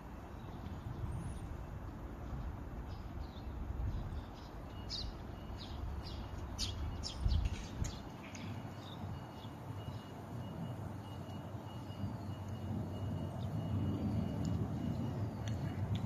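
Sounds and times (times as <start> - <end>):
small birds chirping: 2.2 - 10.2.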